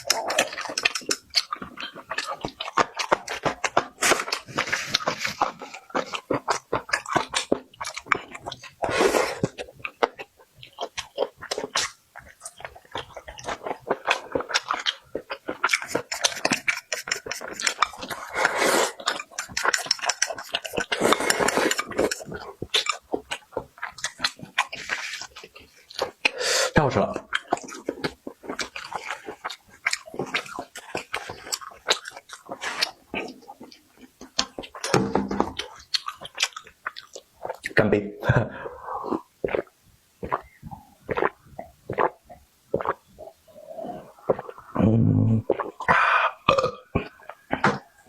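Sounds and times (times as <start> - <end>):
crisp crunching of food: 0.0 - 26.3, 27.2 - 37.8
person eating: 0.0 - 48.0.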